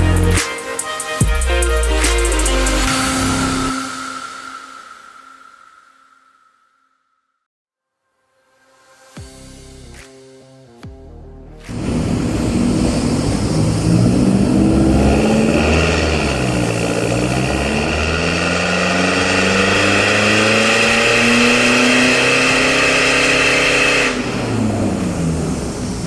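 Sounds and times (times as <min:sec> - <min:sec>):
pickup engine revving at full throttle: 0:11.7 - 0:26.0.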